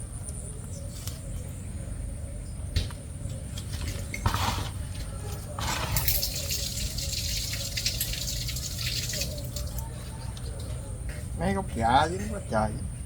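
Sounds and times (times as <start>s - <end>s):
water dripping and trickling: 5.6s - 10.8s
water splashing: 6.0s - 9.8s.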